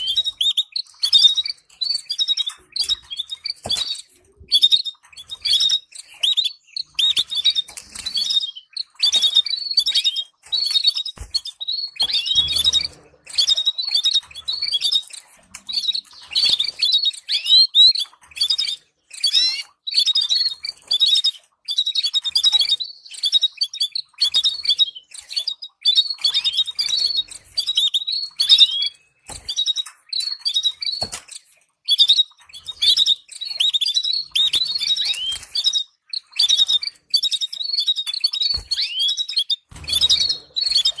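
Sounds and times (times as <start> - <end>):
canary singing trills: 0.0 - 41.0.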